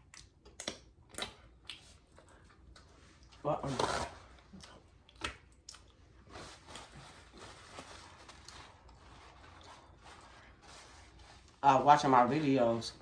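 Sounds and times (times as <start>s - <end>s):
person chewing food: 0.0s - 3.4s, 4.3s - 7.4s.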